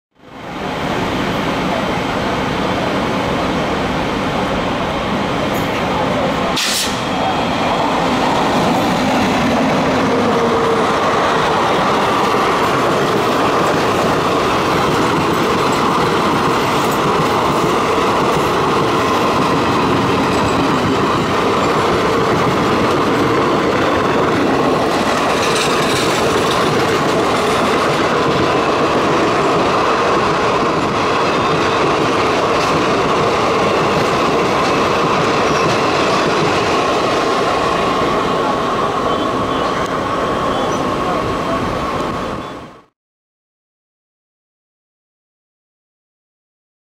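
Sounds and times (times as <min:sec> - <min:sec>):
train wheels rumbling on rails: 0:00.2 - 0:42.9
rushing air: 0:05.4 - 0:31.2.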